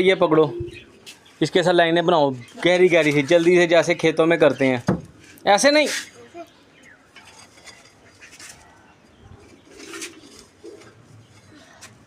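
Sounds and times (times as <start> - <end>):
scraping in garden soil: 7.2 - 12.0
pigeon cooing: 8.3 - 12.0.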